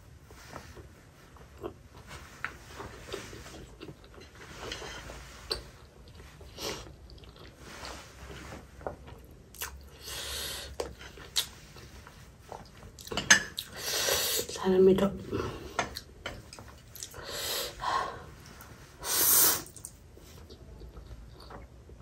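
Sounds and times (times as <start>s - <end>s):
chewing with wet mouth smacks: 9.0s - 9.9s, 10.8s - 11.9s.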